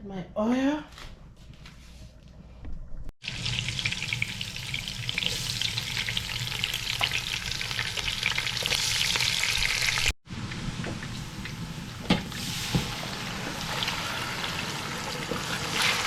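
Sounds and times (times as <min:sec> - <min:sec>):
food frying in hot oil: 0:03.2 - 0:11.6, 0:12.4 - 0:16.0.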